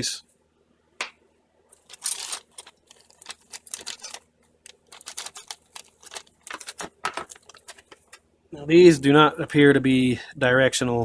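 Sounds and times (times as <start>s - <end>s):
small parts clicking and tapping: 1.8s - 8.2s.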